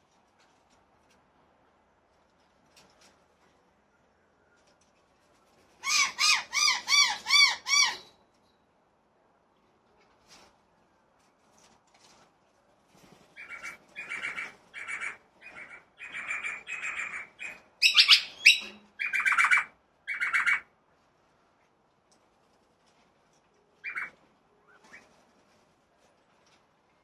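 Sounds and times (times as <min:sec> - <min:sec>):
birds calling: 0:05.8 - 0:08.2, 0:13.4 - 0:20.6, 0:23.8 - 0:25.1.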